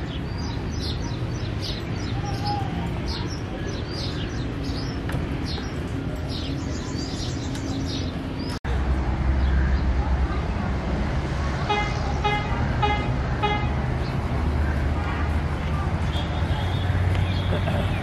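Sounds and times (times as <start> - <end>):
small birds chirping: 0.0 - 8.6, 13.4 - 18.0.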